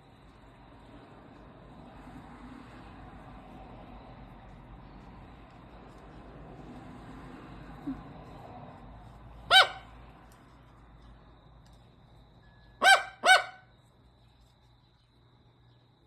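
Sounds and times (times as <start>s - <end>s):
bird harsh calls: 9.5s - 9.9s, 12.8s - 13.6s.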